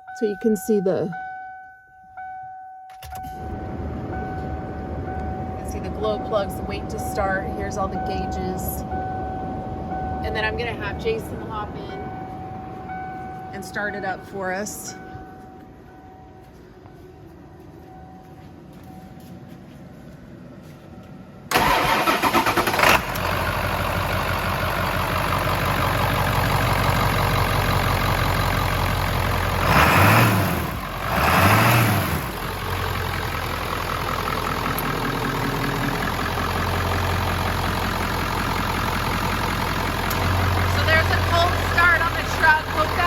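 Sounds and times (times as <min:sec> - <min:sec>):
diesel engine cranking and idling: 0:03.0 - 0:16.6, 0:20.2 - 0:43.0
diesel engine revving: 0:21.5 - 0:43.0.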